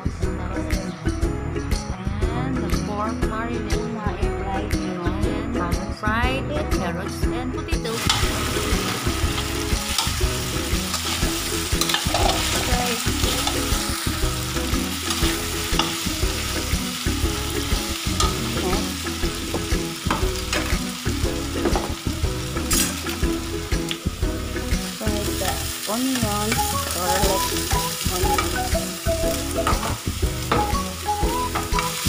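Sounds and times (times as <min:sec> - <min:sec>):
vegetables sizzling in a wok: 0:07.9 - 0:32.0
metal spatula scraping a pan: 0:10.8 - 0:13.8.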